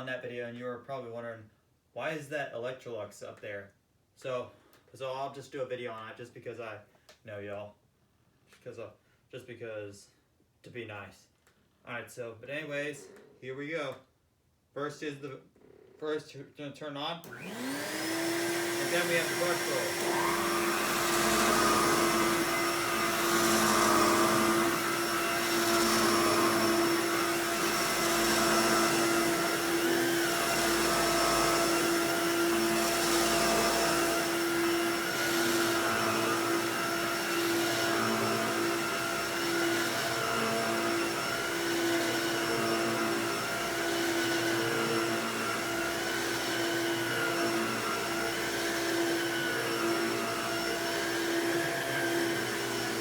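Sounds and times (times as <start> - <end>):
upright vacuum cleaner running: 17.3 - 53.0.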